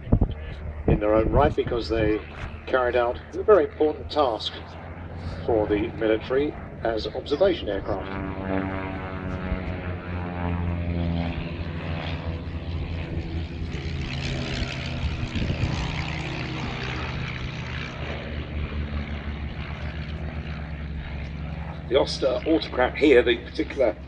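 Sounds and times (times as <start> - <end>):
propeller aircraft flying past: 0.0 - 24.0.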